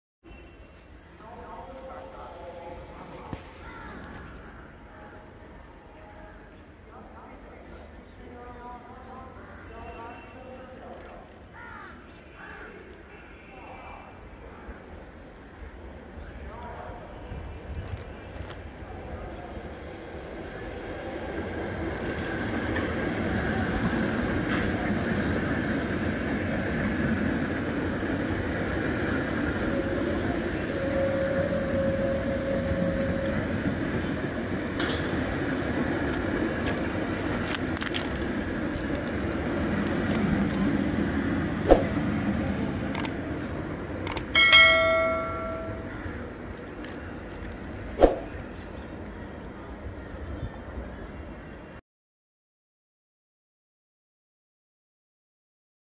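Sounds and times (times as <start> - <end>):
train wheels rumbling on rails: 17.3 - 48.7
sharp clicks: 42.9 - 43.2, 44.1 - 44.3
ringing bell chime: 44.4 - 45.9.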